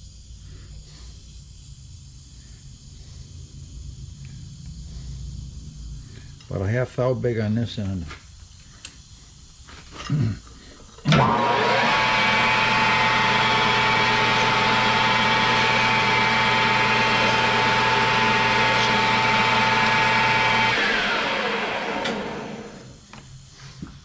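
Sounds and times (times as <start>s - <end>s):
lathe motor whining and humming: 11.1s - 23.0s.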